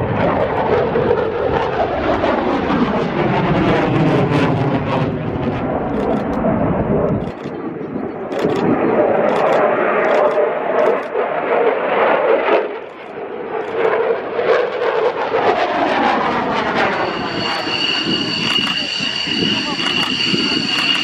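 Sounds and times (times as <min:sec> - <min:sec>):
airplane engine in flight: 0:00.0 - 0:21.0
high whine: 0:16.3 - 0:21.0.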